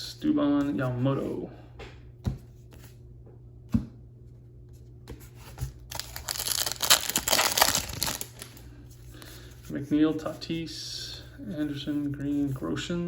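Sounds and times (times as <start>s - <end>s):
wrapper tearing and crinkling: 5.9s - 8.6s.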